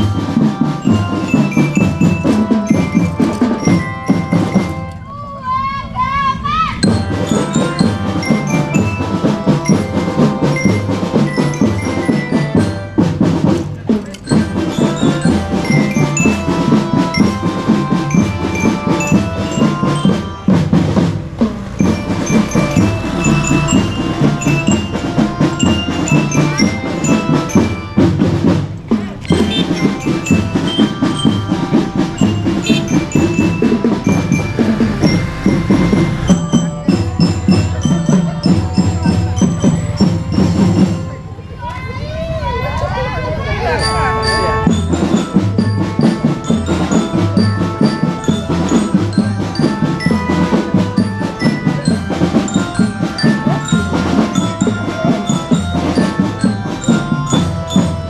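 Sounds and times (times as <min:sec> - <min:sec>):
snare and bass drums: 0:00.0 - 0:04.9, 0:06.8 - 0:41.2, 0:44.6 - 0:58.0
bell lyres playing melody: 0:00.0 - 0:58.0.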